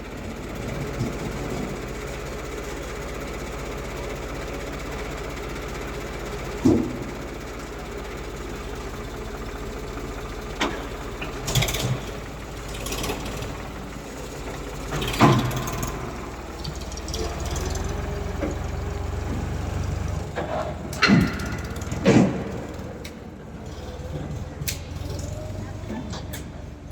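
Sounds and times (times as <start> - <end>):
heavy diesel engine running: 0.0 - 26.9
sharp knocks and bangs: 21.0 - 23.0.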